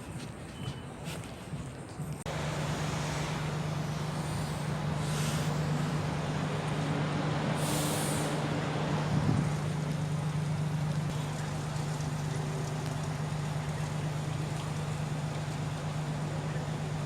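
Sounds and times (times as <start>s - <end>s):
bus engine hum: 0.0s - 17.0s
air brakes hissing: 2.4s - 9.6s.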